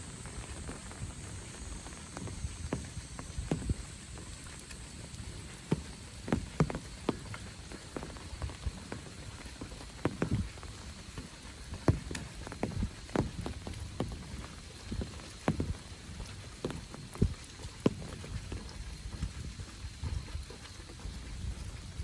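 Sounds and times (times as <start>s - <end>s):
rain hiss: 0.0s - 22.0s.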